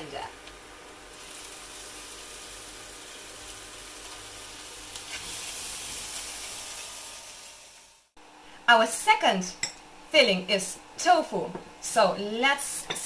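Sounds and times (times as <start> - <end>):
mince sizzling in a pan: 0.0 - 8.2.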